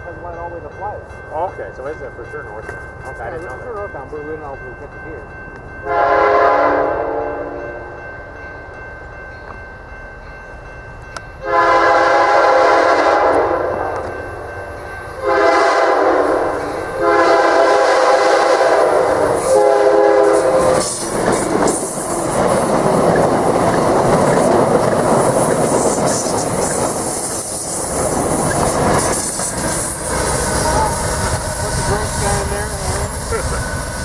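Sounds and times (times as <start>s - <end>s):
train horn blasts: 5.8s - 8.0s, 11.4s - 14.2s, 15.2s - 21.0s
train wheels roaring on rail: 10.6s - 34.0s.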